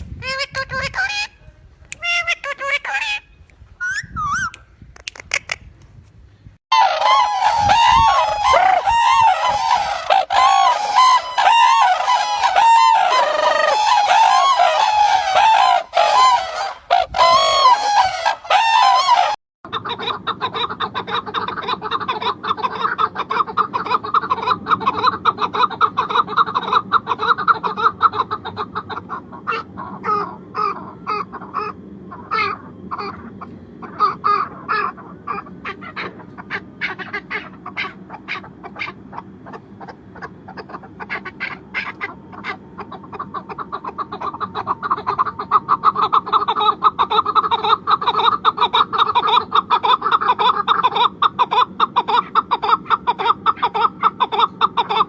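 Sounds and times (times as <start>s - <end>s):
flock of birds chattering: 7.0s - 19.4s.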